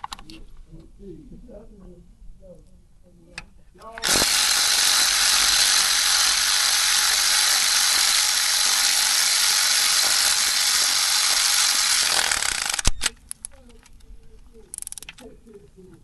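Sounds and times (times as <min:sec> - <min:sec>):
power ratchet running: 0:04.0 - 0:13.1.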